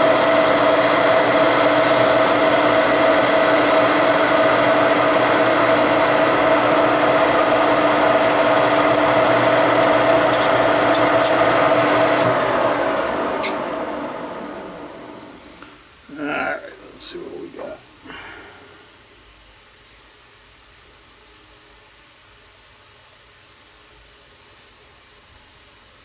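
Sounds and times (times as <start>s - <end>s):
metal lathe whining: 0.0s - 15.4s.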